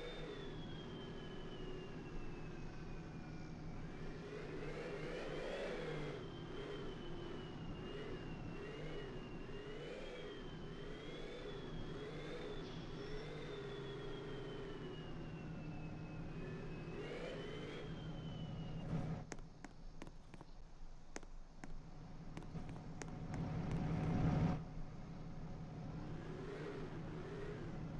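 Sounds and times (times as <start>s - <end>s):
vehicle engine revving: 25.9s - 27.9s.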